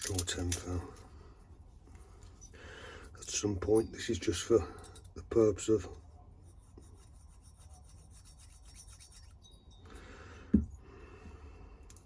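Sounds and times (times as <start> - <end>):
metal blade scraping: 6.4 - 10.0.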